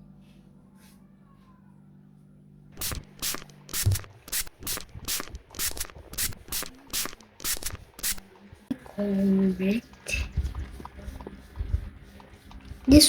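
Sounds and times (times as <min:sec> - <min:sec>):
rough rubbing strokes: 0:02.8 - 0:13.0.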